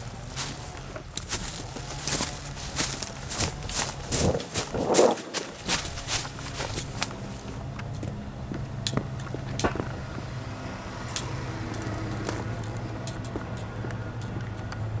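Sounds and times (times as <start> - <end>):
engine idling hum: 0.0 - 15.0
sharp clicks and knocks: 5.7 - 14.8.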